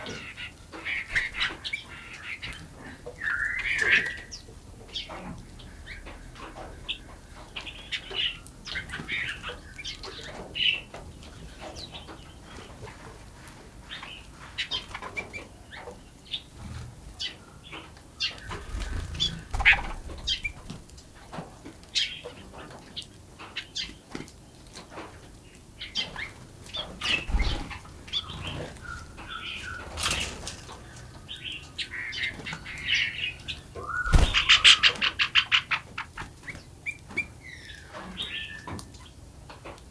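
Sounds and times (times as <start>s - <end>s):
small birds chirping: 0.0s - 39.8s
wing flutters: 18.3s - 21.3s, 26.0s - 35.3s
low thuds: 33.9s - 34.8s.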